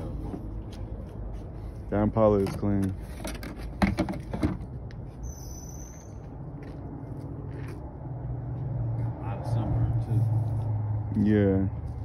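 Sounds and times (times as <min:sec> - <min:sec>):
high-pitched squeak: 0:05.2 - 0:06.2.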